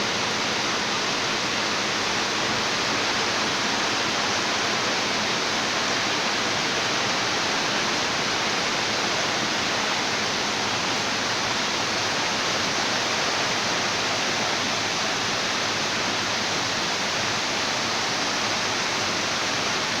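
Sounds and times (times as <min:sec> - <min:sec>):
rushing water: 0:00.0 - 0:20.0.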